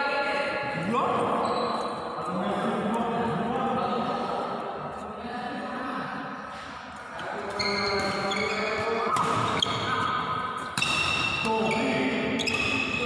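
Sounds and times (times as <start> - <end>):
sports hall noise: 0.0 - 13.0
racket hitting shuttlecock: 9.1 - 10.0, 10.6 - 11.4.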